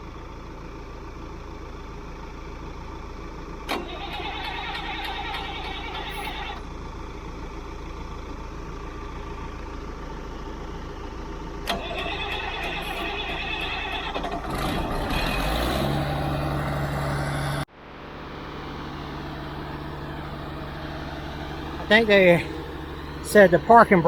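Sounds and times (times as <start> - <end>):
diesel engine starting: 0.0 - 24.0
heavy diesel engine running: 0.0 - 24.0.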